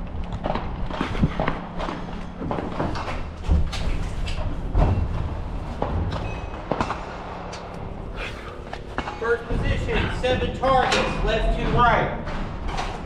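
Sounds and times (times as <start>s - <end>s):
footsteps: 0.3s - 11.6s
heavy thumps: 4.7s - 10.9s.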